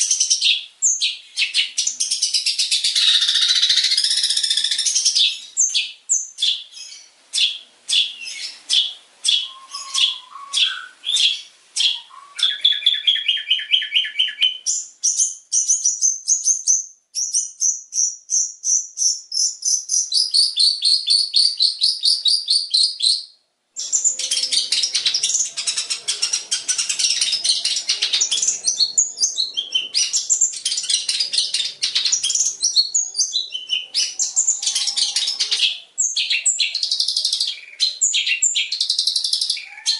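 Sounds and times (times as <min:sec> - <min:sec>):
bird singing sharp trills: 0:00.0 - 0:39.9
bird chatter of mixed calls: 0:01.2 - 0:05.8, 0:06.4 - 0:14.7, 0:23.8 - 0:39.9.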